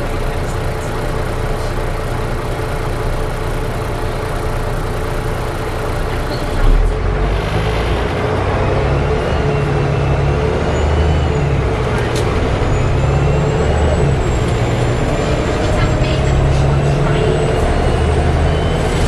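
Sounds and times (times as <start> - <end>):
bus engine running noise: 0.0 - 19.0.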